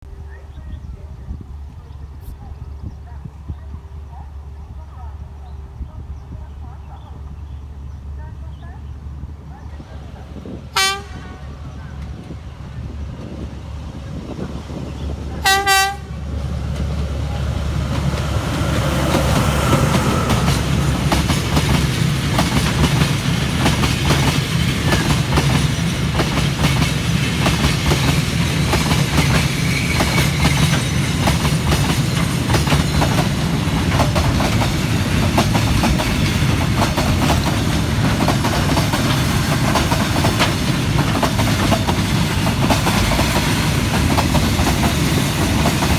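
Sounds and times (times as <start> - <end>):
locomotive engine rumble: 0.0 - 45.9
train wheels clattering over rails: 9.6 - 45.9
locomotive horn blast: 10.7 - 12.2, 15.3 - 16.4.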